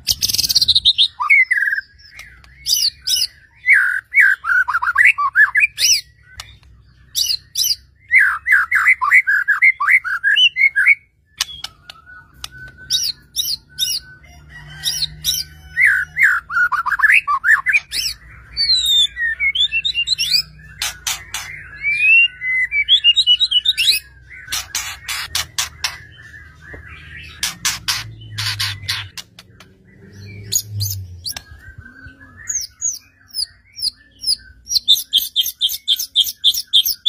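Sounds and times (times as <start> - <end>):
songbird singing whistles: 0.0 - 37.0
sharp clicking bird notes: 2.0 - 3.2, 11.4 - 14.0, 20.3 - 21.7, 23.9 - 31.6.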